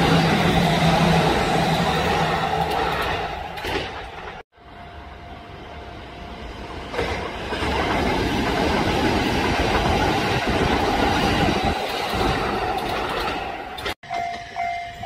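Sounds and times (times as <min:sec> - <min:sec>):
train wheels on rails: 0:00.0 - 0:04.4, 0:06.5 - 0:15.0.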